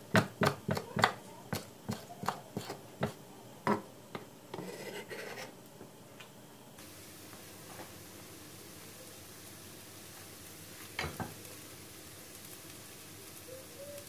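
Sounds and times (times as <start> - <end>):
food sizzling in a pan: 0.0 - 5.8, 6.8 - 14.0
utensil scraping: 4.5 - 5.6.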